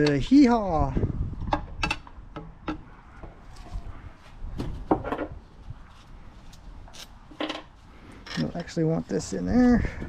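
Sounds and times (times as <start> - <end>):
engine parts and tools clattering: 6.5 - 8.8.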